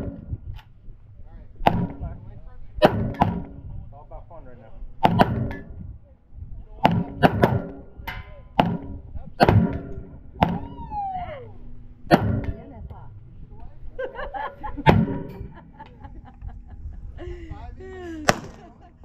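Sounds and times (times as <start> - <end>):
sharp gunshots: 1.6 - 3.8, 5.0 - 5.8, 6.8 - 10.7, 12.0 - 12.7, 14.8 - 15.6, 18.2 - 18.8.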